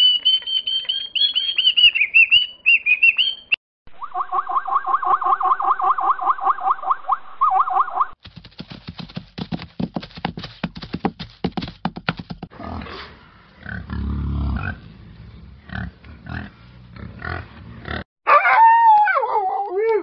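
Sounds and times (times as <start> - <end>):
quick clicking and tapping: 8.2 - 12.5.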